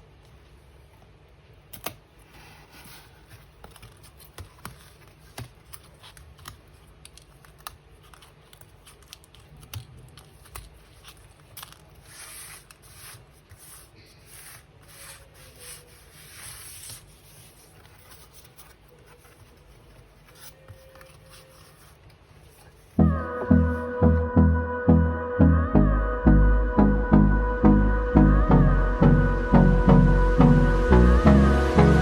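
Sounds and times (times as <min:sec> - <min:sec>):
paper rustling and tearing: 0:02.3 - 0:23.0.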